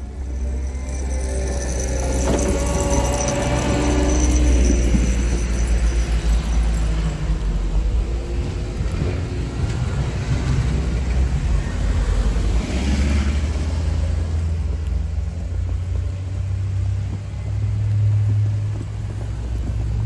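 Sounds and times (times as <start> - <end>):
vehicle engine rumbling: 0.0 - 20.0
vehicle passing with tyre swish: 8.8 - 14.8.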